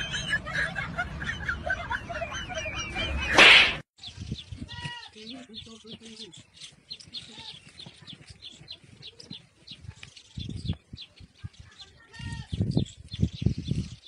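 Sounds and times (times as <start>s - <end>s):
small birds chirping: 4.0s - 14.0s.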